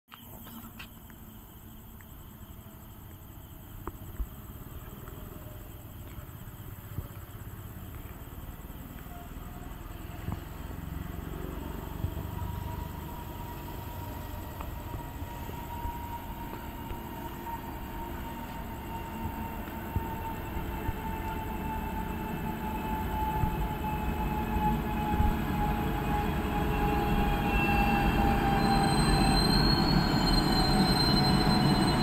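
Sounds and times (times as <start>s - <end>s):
express train rumbling: 9.1s - 32.0s.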